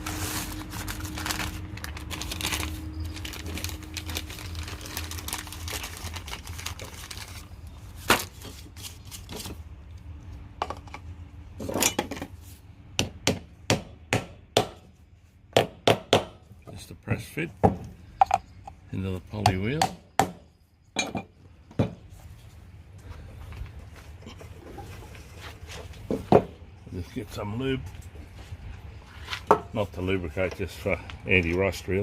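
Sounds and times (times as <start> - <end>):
rummaging through parts and tools: 0.0 - 9.8, 10.6 - 12.6.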